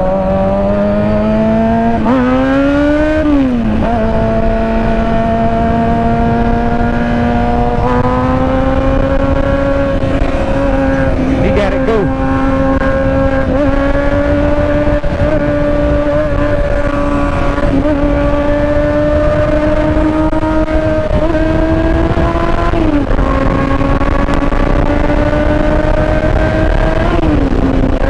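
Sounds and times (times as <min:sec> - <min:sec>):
motorcycle engine revving high: 0:00.0 - 0:28.0.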